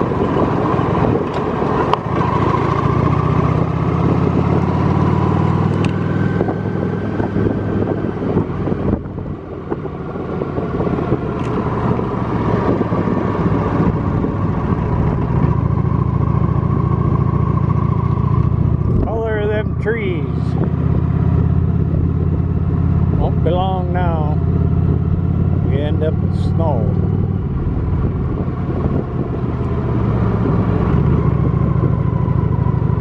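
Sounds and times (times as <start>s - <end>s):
wind noise on microphone: 0.0s - 17.7s, 18.4s - 33.0s
motorcycle engine running: 0.0s - 33.0s.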